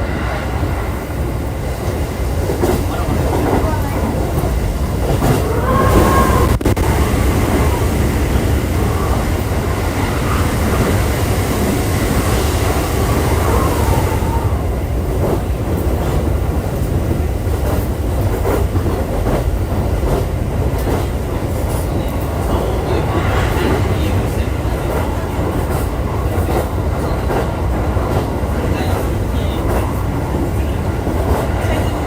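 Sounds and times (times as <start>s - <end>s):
wavering train whine: 0.0s - 15.4s
wheels rumbling on rail: 0.0s - 32.0s.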